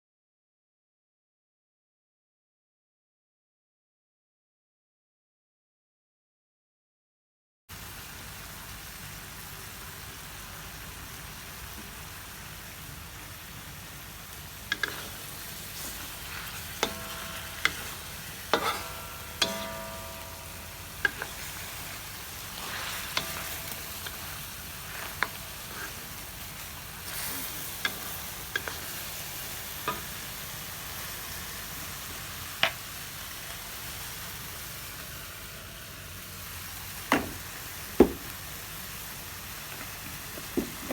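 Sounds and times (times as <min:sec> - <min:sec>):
food sizzling in oil: 0:07.7 - 0:40.9
spatula knocking and scraping pan: 0:14.7 - 0:26.4, 0:27.0 - 0:29.0, 0:29.8 - 0:30.1, 0:37.1 - 0:38.4, 0:40.4 - 0:40.9
metallic ring: 0:16.0 - 0:24.4.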